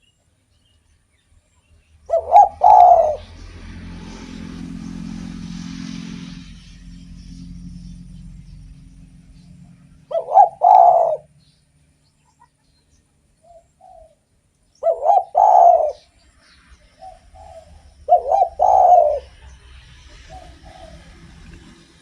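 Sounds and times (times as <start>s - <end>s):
dove cooing: 2.1s - 3.7s, 9.5s - 11.4s, 13.4s - 14.2s, 14.8s - 16.2s, 17.0s - 21.8s.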